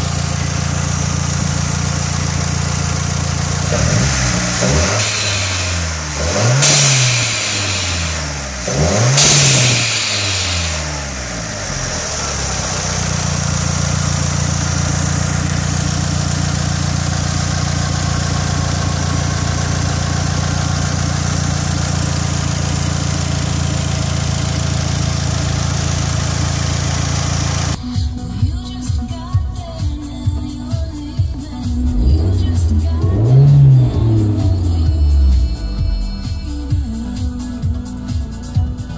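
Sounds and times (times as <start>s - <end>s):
car engine revving: 0.0s - 27.8s, 31.5s - 37.7s
car engine idling: 0.0s - 38.9s
turbo hissing whoosh: 4.9s - 11.4s.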